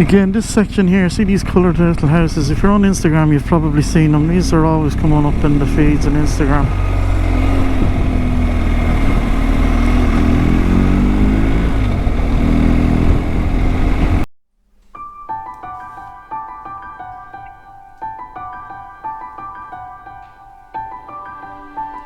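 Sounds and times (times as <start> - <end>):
motorcycle engine running: 0.0 - 14.3
wind rumble on microphone: 1.2 - 14.3
soft piano music: 14.9 - 22.0.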